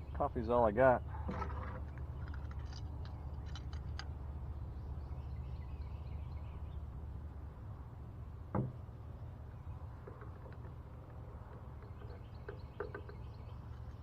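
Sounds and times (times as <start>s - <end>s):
bird chirps: 0.0s - 0.4s, 4.5s - 7.0s, 9.5s - 14.0s.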